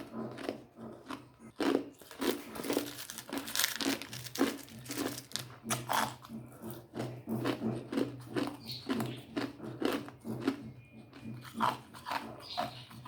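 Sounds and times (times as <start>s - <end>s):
ice crunching between teeth: 0.3s - 10.6s.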